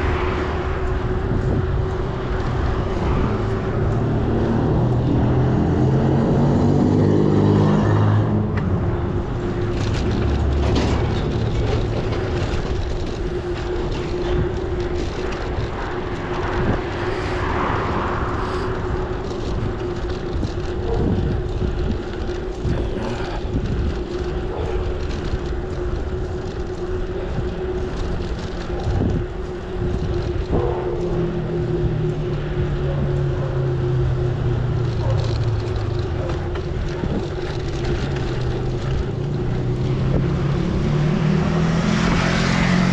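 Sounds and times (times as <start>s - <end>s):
vehicle engine: 0.0s - 42.9s
wind and road rush: 0.0s - 42.9s.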